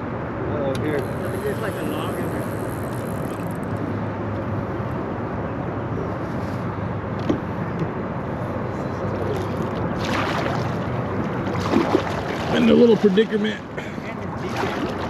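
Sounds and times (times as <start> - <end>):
water rushing around kayak: 1.0 - 3.9, 9.1 - 15.0.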